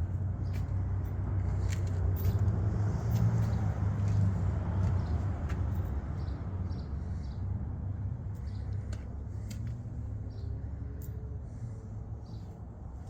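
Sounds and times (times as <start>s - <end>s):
engine idling hum: 0.0s - 13.0s.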